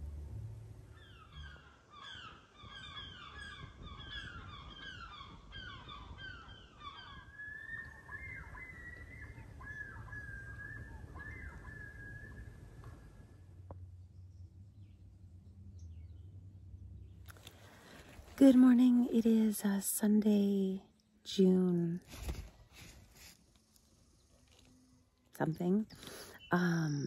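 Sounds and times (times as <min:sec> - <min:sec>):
birds calling: 0:00.9 - 0:13.4.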